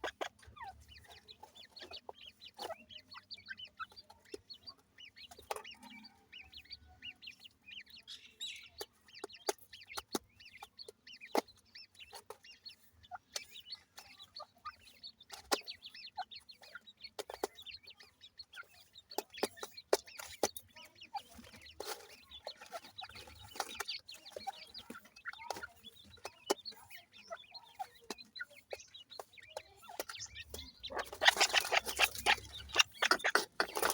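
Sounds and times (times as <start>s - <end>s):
chicks peeping: 0.0s - 33.9s
sharp ticks: 28.8s - 33.9s
scratchy noise burst: 30.2s - 33.9s.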